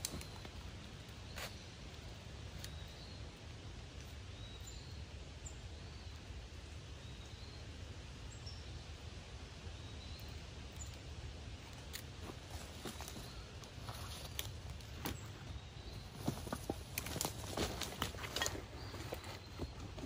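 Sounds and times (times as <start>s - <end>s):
bird chirping: 4.0s - 6.3s, 9.7s - 11.0s, 12.5s - 20.0s.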